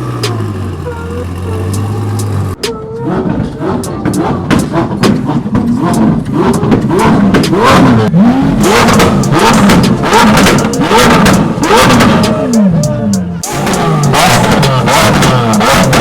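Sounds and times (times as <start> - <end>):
exhaust cracks: 0.0 - 16.0
supercar engines revving: 0.0 - 16.0.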